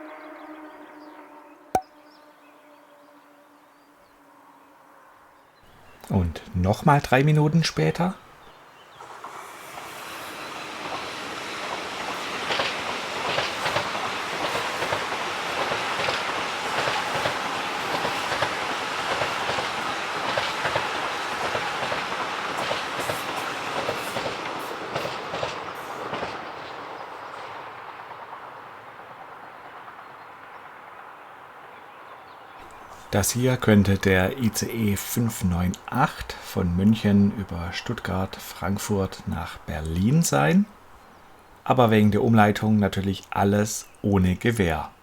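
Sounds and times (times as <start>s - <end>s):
train wheels clicking over rails: 9.0s - 30.2s.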